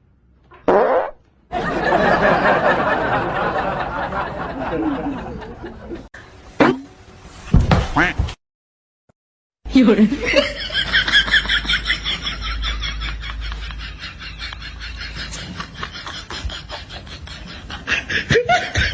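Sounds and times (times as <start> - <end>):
people laughing: 1.5 - 6.1, 9.8 - 18.9.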